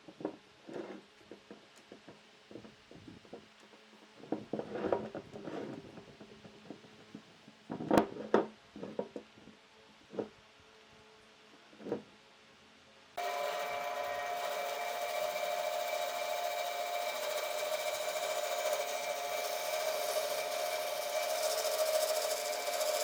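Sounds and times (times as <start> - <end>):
wood and tools knocking: 13.2 - 23.0.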